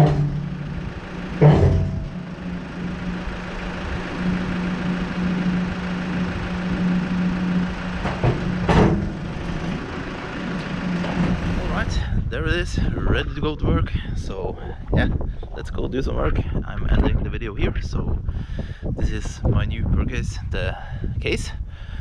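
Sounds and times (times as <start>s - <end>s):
loud bangs: 0.0s - 12.0s
diesel engine running: 0.0s - 22.0s.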